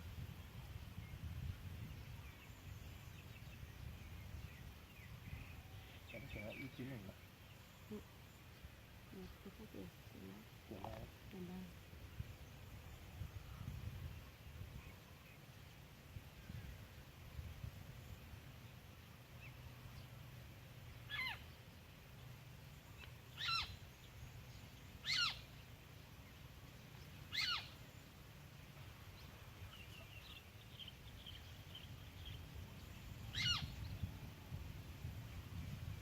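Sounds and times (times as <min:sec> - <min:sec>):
faint bird trill: 0:21.0 - 0:21.6, 0:23.0 - 0:24.0, 0:25.0 - 0:25.6, 0:27.2 - 0:28.1, 0:29.7 - 0:34.1.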